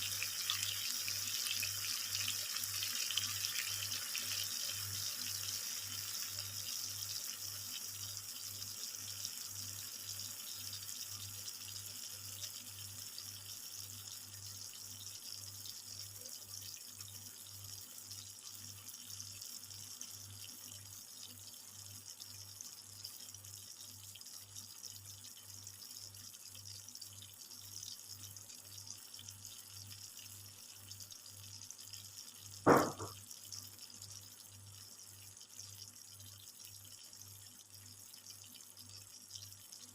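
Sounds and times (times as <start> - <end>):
pot simmering with watery hiss: 0.0 - 39.9
loud knock: 32.7 - 33.1.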